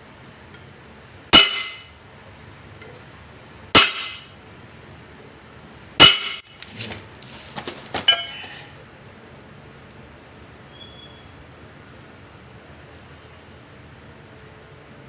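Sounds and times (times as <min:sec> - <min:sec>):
hammer clanging on metal: 0:01.4 - 0:02.0, 0:03.8 - 0:04.4, 0:06.0 - 0:06.6.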